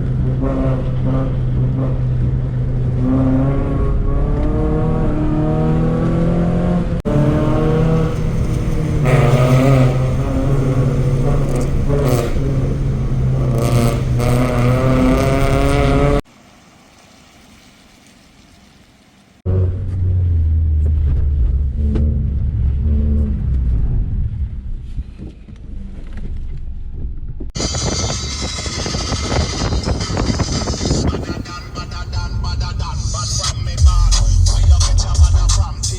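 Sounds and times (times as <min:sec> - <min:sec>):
modified car engine revving: 0:00.0 - 0:16.3, 0:19.5 - 0:35.9
deep steady engine note: 0:06.7 - 0:14.5, 0:19.5 - 0:35.9.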